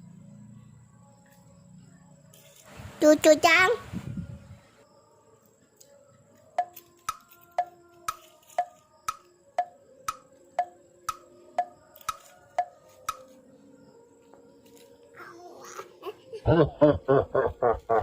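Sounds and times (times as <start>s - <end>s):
wood-block-like ticks: 6.6s - 13.2s.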